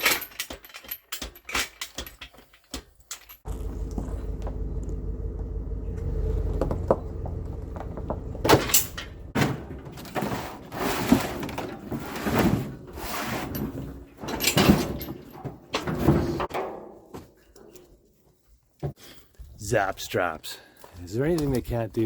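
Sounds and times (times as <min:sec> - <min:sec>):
low motor hum: 0:03.4 - 0:09.4
equipment clunking and rattling: 0:06.0 - 0:18.0.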